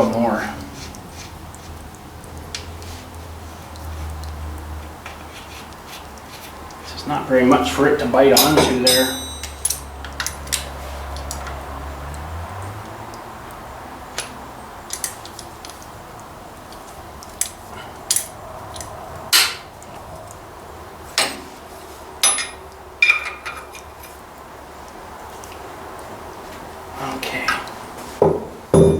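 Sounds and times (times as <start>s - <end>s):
metal hand tools clinking: 7.5s - 11.6s, 22.2s - 24.2s.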